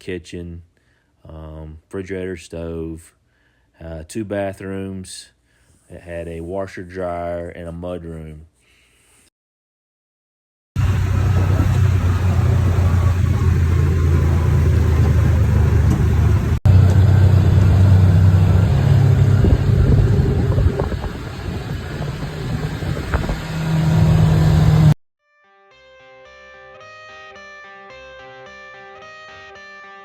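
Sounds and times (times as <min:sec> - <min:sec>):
vehicle engine droning: 0:10.8 - 0:25.0.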